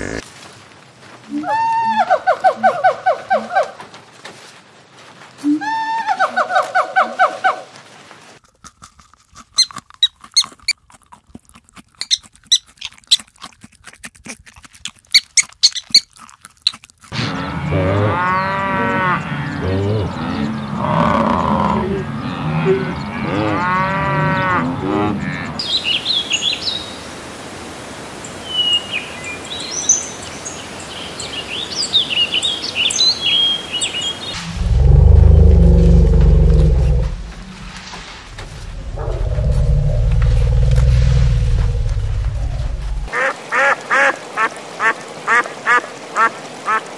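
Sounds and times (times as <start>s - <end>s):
water buffalo lowing: 17.1s - 25.6s, 34.3s - 43.1s.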